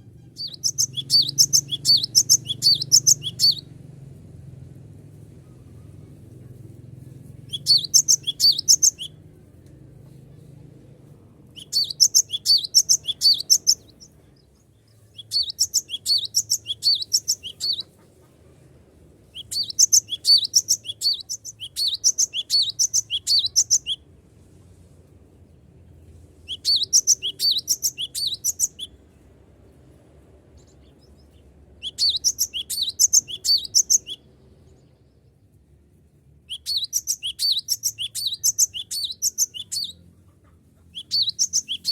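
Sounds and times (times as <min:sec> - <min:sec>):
bird chattering song: 0:00.2 - 0:03.7, 0:07.5 - 0:09.2, 0:11.6 - 0:18.2, 0:19.4 - 0:24.0, 0:26.5 - 0:29.0, 0:30.6 - 0:34.3, 0:36.5 - 0:41.9.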